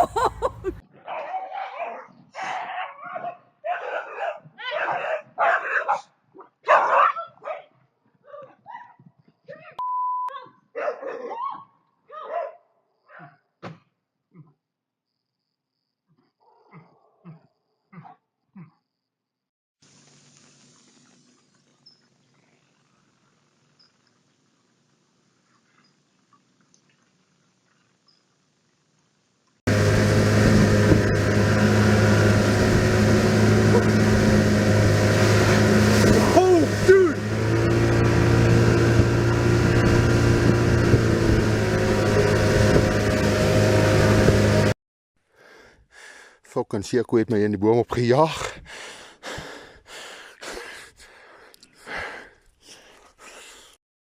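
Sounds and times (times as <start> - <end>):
dog barking and yelping: 0.5 - 9.0, 10.4 - 13.4
short steady beep: 9.8 - 10.3
engine running with low hum: 29.7 - 44.8.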